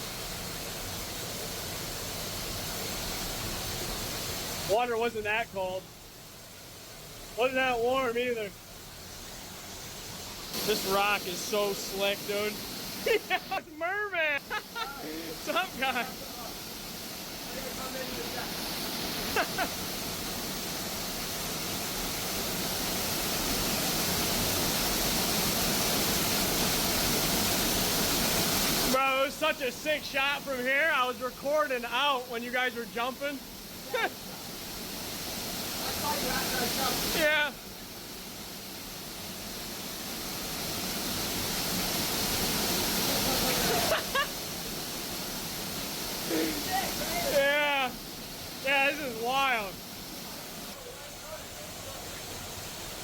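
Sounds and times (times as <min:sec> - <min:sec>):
waterfall rushing: 0:00.0 - 0:53.0
person's voice: 0:07.4 - 0:08.5, 0:10.6 - 0:16.6, 0:28.9 - 0:34.1, 0:35.8 - 0:37.6, 0:46.2 - 0:48.0, 0:48.6 - 0:49.8.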